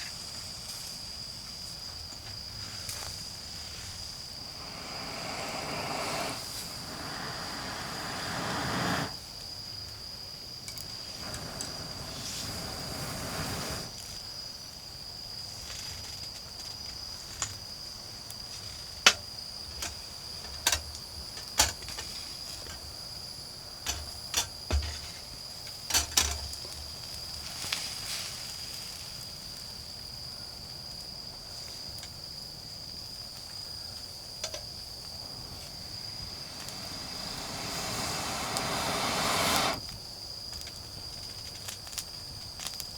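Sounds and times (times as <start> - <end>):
insects trilling: 0.0 - 42.9
campfire popping: 4.0 - 9.2, 10.7 - 14.0, 34.6 - 39.9.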